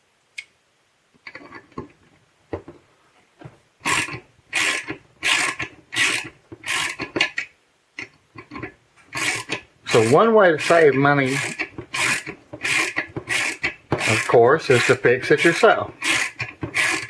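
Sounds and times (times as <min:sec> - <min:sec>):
ratchet wrench rasping: 0:03.8 - 0:07.4, 0:08.4 - 0:17.0.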